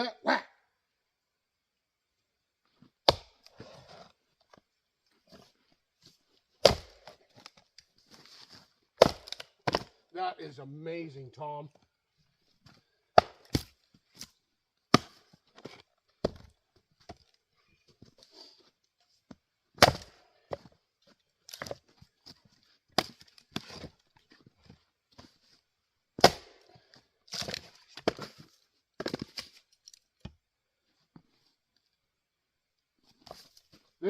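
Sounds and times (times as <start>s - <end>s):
axe chopping firewood: 3.0s - 3.8s, 6.6s - 7.5s, 9.0s - 10.0s, 13.1s - 14.3s, 14.9s - 17.2s, 19.8s - 20.8s, 21.5s - 21.9s, 23.0s - 23.9s, 26.2s - 28.4s, 29.0s - 29.4s.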